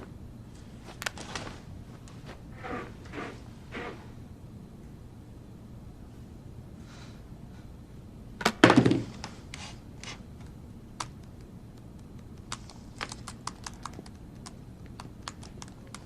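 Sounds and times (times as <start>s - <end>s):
thump and clatter: 8.4s - 9.1s
typing on computer keyboard: 11.0s - 16.0s.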